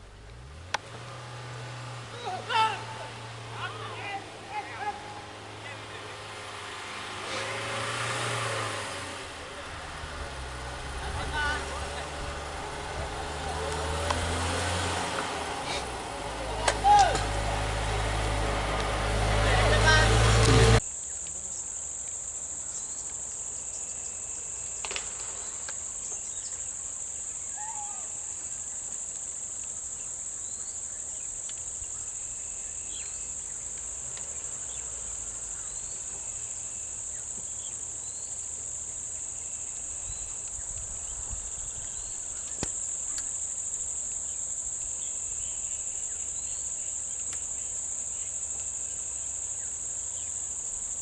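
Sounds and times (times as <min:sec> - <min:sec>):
high-pitched insect chorus: 0:19.4 - 0:51.0.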